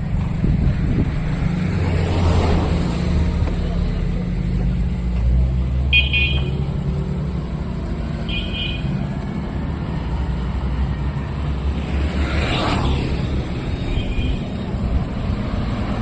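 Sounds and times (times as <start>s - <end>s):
vehicle passing: 0.0s - 16.0s.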